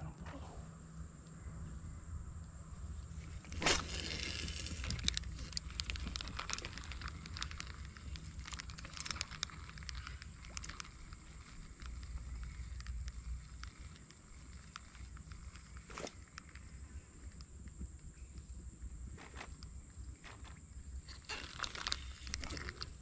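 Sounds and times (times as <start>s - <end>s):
fishing reel clicks and crackles: 3.4s - 17.5s, 21.1s - 23.0s.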